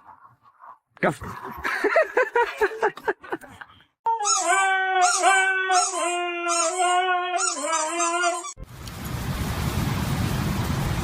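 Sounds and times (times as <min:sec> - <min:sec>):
dog howling: 0:04.1 - 0:08.6.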